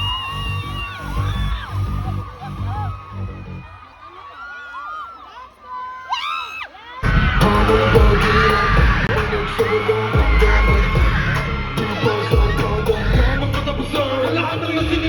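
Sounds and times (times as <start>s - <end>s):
crowd screaming: 0.0s - 15.0s
live pop music with singing: 7.0s - 15.0s.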